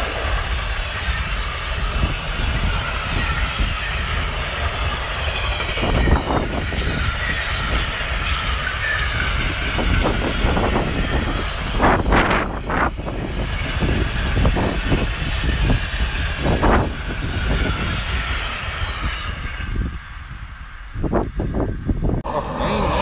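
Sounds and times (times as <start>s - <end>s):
train wheels clattering: 0.0s - 19.8s
train wheels rumbling on rail: 0.0s - 23.0s.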